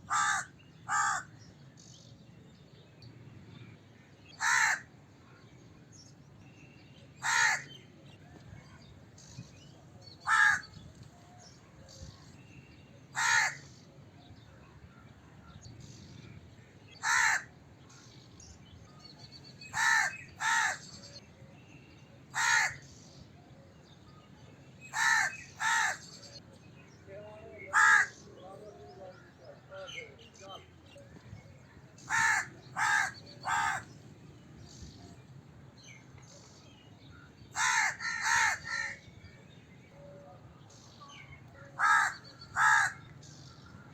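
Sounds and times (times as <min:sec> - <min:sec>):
crow cawing: 0:00.1 - 0:01.3, 0:04.4 - 0:04.9, 0:07.2 - 0:07.7, 0:10.2 - 0:10.7, 0:13.2 - 0:13.6, 0:17.0 - 0:17.5, 0:19.7 - 0:20.8, 0:22.4 - 0:22.8, 0:24.9 - 0:26.0, 0:27.7 - 0:28.2, 0:32.1 - 0:33.9, 0:37.6 - 0:39.0, 0:41.8 - 0:43.0.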